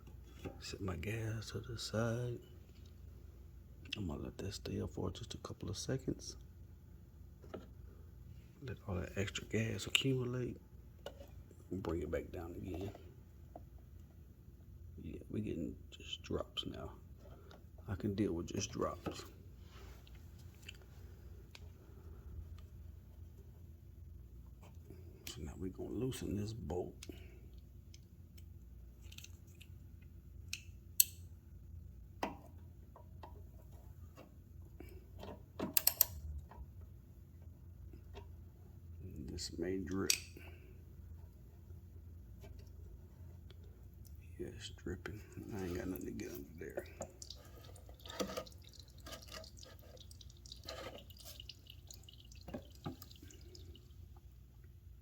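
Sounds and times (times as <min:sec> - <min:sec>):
faint low hum: 0:00.0 - 0:55.0
faint fuel drips: 0:27.0 - 0:28.2, 0:43.5 - 0:54.8
hand tool clicking on bolt: 0:35.8 - 0:36.2.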